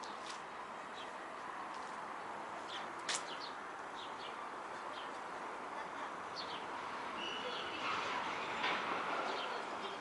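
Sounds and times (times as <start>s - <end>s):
outdoor background hiss: 0.0s - 10.0s
small birds chirping: 0.9s - 1.2s, 2.2s - 5.3s, 6.0s - 8.6s, 9.2s - 10.0s.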